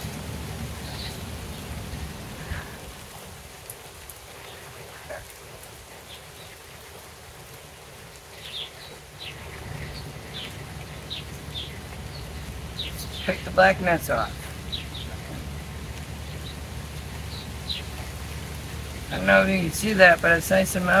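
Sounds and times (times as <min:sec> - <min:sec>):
light rain pattering: 0:00.0 - 0:21.0
bird chirps: 0:00.8 - 0:02.7, 0:08.3 - 0:18.2.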